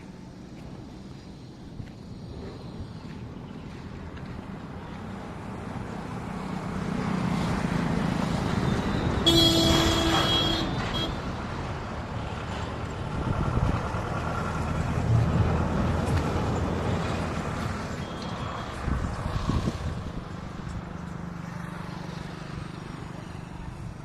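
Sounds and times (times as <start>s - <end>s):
heavy vehicle engine rumbling: 0.0s - 21.4s
vehicle horn: 9.2s - 11.4s, 18.0s - 18.7s.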